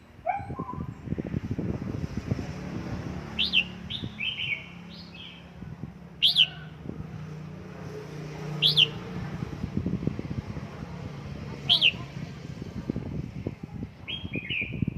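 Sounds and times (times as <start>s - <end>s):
bird chirping: 3.3s - 5.6s, 6.2s - 6.8s, 8.6s - 9.2s, 14.1s - 14.9s
bird warbling: 6.2s - 6.8s, 8.6s - 9.0s.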